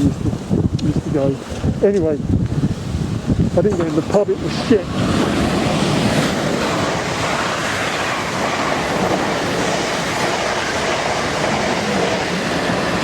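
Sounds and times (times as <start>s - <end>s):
train wheels rumbling on rails: 3.6s - 13.0s.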